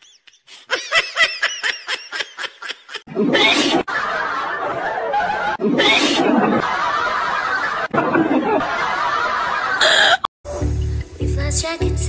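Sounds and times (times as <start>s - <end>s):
person giggling: 9.8s - 10.3s.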